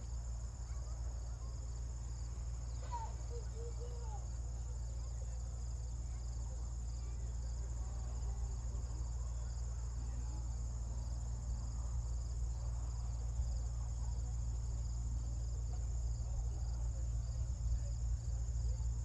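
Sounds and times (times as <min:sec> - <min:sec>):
crickets chirping: 0:00.0 - 0:19.0
distant voices: 0:00.0 - 0:19.0.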